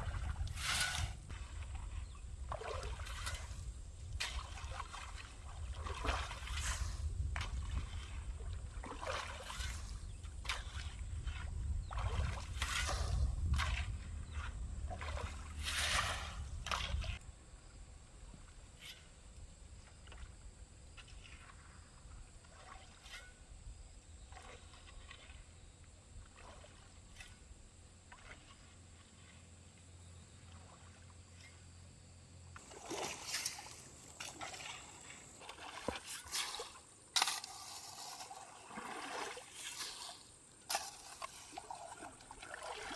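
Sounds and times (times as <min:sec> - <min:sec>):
splashing in shallow stream water: 0:00.0 - 0:17.2, 0:19.8 - 0:31.8, 0:32.6 - 0:42.9
faint trickling water: 0:32.6 - 0:36.8, 0:37.6 - 0:42.9.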